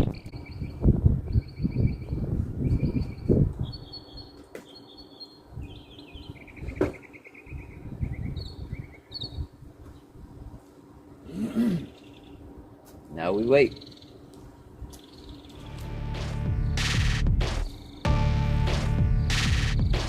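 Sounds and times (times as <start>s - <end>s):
bird chirping in rapid trills: 0.0s - 9.5s, 13.4s - 14.2s, 17.6s - 18.1s.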